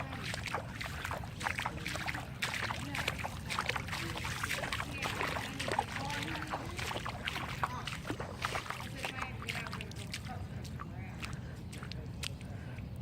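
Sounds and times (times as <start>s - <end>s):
water sloshing from wading: 0.0s - 13.0s.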